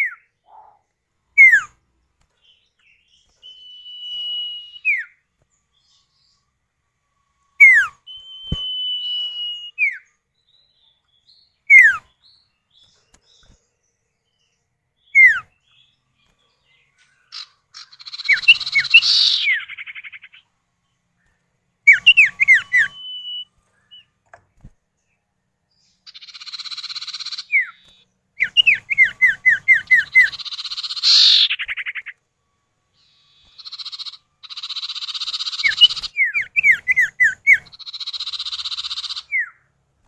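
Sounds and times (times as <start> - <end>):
bird long whistles: 3.4 - 5.1, 7.6 - 10.0, 17.8 - 20.1, 28.4 - 32.1
harsh rattling bird chatter: 16.4 - 20.4, 26.1 - 32.1, 33.1 - 39.5.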